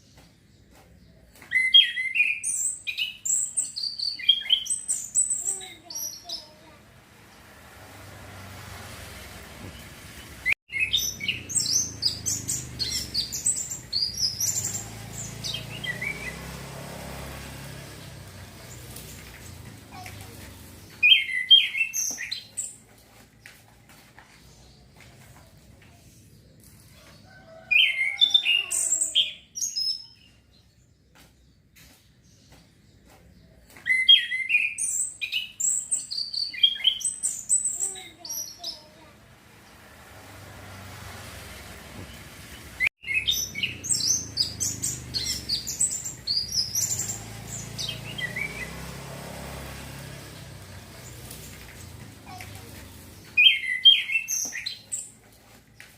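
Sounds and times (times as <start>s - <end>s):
thrush chirping song: 40.6s - 55.2s.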